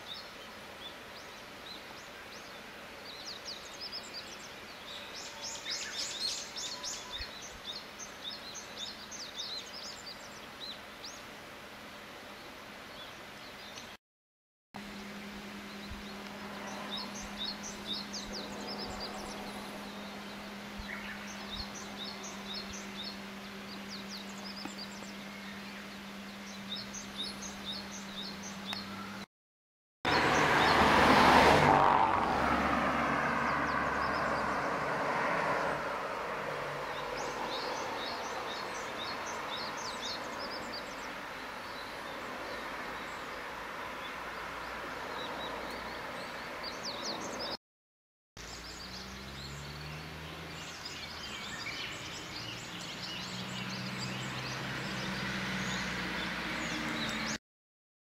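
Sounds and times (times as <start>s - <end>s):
rural background noise: 0.0s - 14.0s, 14.8s - 29.3s, 30.1s - 47.6s, 48.4s - 57.4s
songbird singing: 0.0s - 14.0s, 14.8s - 29.3s, 30.1s - 47.6s, 48.4s - 57.4s
vehicle passing by: 14.8s - 28.6s, 30.1s - 47.6s, 48.4s - 57.4s
low steady hum: 14.8s - 29.2s.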